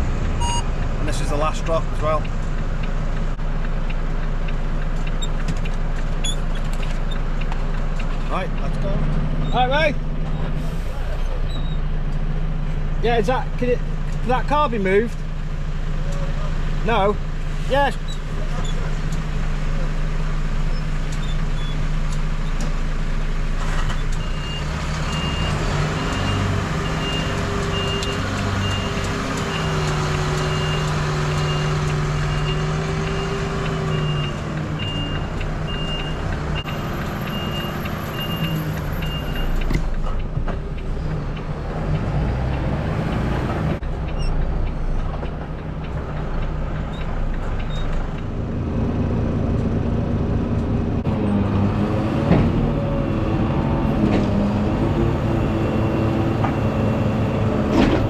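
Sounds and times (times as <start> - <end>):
diesel truck engine running: 0.0 - 58.0
reversing alarm beeping: 0.4 - 0.7, 24.2 - 39.6.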